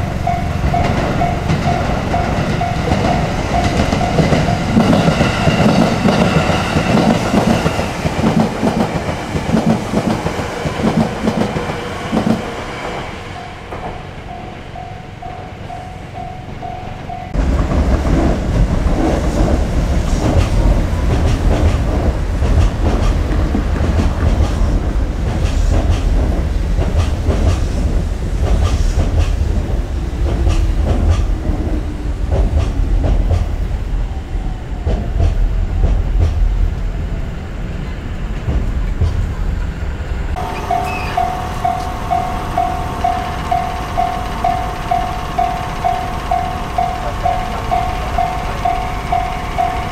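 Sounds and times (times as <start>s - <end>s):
repeating tone: 0.0s - 7.2s, 40.4s - 49.9s
wheels clicking over rail joints: 0.0s - 31.7s, 40.3s - 49.9s
electric train whine: 0.0s - 35.7s, 39.3s - 49.9s
loud low train rumble: 0.0s - 49.9s.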